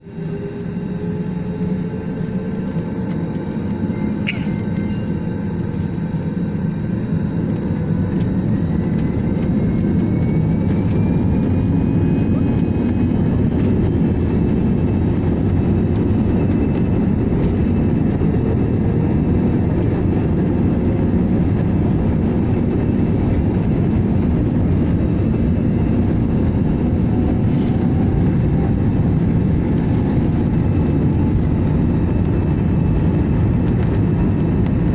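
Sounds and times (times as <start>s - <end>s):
jet engine rumble: 0.0s - 34.9s.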